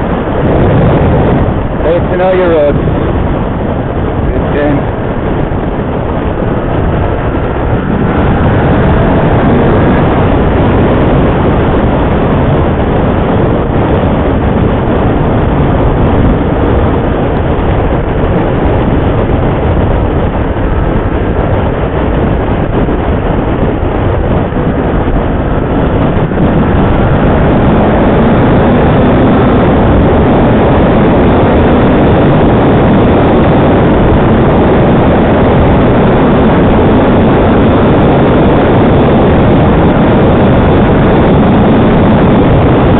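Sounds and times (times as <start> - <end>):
wind rush on microphone: 0.0 - 42.9.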